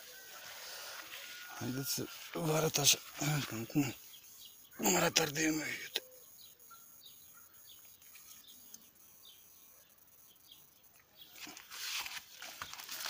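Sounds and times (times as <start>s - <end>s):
leaves rustling: 0.0s - 4.2s, 11.2s - 13.0s
small birds chirping: 0.6s - 13.0s.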